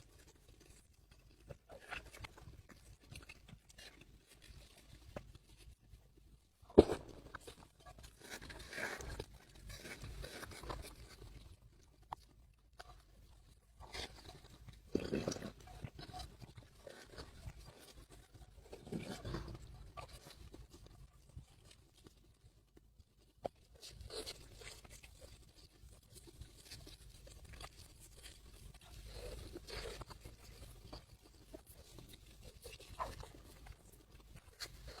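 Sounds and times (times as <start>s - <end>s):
rustling: 0.0s - 22.3s
food being chewed: 0.0s - 35.0s.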